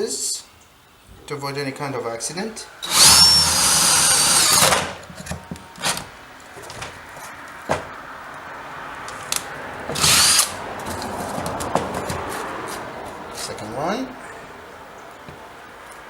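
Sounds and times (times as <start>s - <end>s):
power drill whining: 2.8s - 5.0s, 9.9s - 10.6s
sharp knocks: 7.6s - 8.0s.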